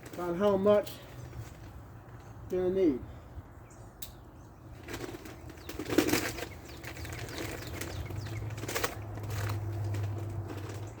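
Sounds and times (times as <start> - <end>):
bag of soil rustling and crinkling: 0.0 - 2.0, 4.7 - 11.0.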